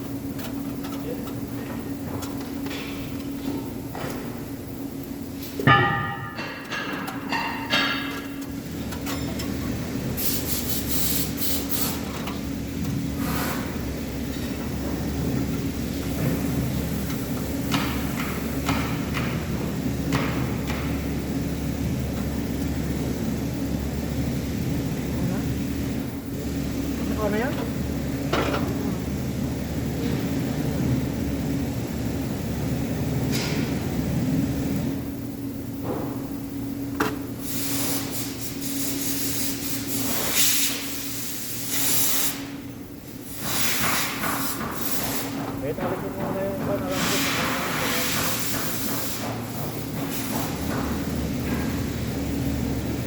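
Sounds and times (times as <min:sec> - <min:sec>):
steady electrical hum: 0:00.0 - 0:53.0
hammer knocks on metal: 0:05.6 - 0:08.2
arc welding crackling hiss: 0:08.7 - 0:14.8, 0:37.3 - 0:45.7, 0:46.5 - 0:50.7
low motor hum: 0:12.0 - 0:37.4.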